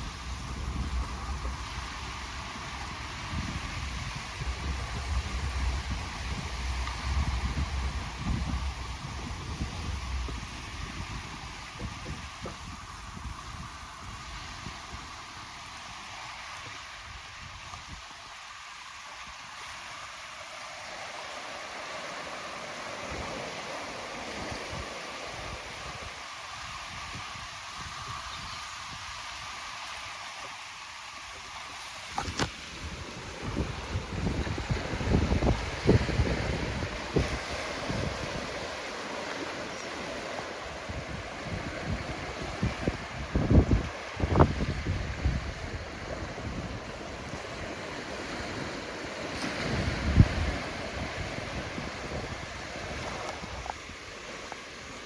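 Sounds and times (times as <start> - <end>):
wind rumbling on microphone: 0.0 - 20.1, 21.8 - 55.0
ocean surf washing on beach: 0.0 - 55.0.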